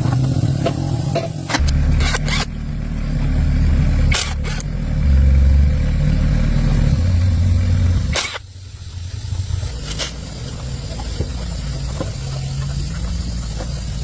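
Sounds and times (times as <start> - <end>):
tractor engine rumbling: 0.0 - 14.0
sharp clicks: 4.1 - 4.7, 8.0 - 8.5.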